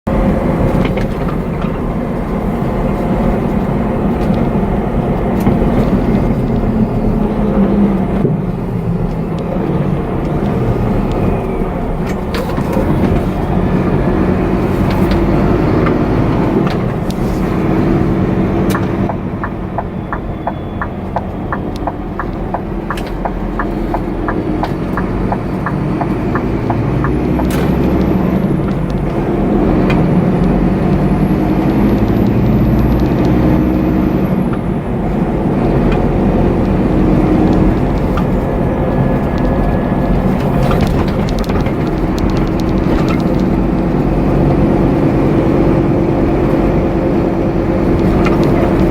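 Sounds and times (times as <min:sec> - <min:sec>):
truck diesel engine running: 0:00.1 - 0:48.9.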